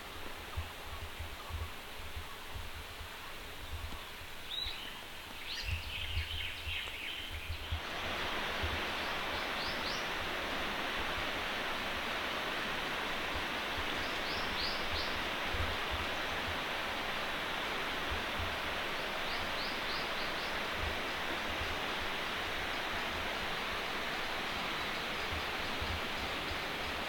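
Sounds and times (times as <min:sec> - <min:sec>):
wind rumble on microphone: 0:00.0 - 0:27.0
distant waterfall rushing: 0:07.7 - 0:27.0.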